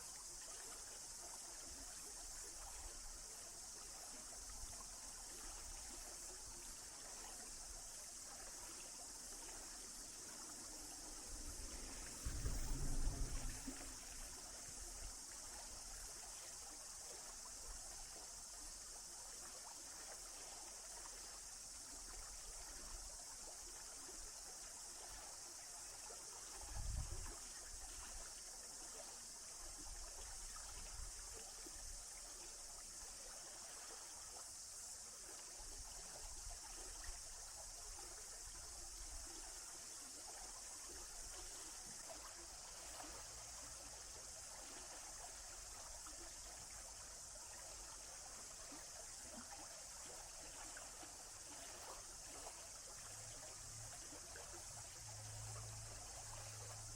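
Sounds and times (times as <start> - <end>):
stream water flowing: 0.0 - 56.9
low thump: 11.7 - 14.4.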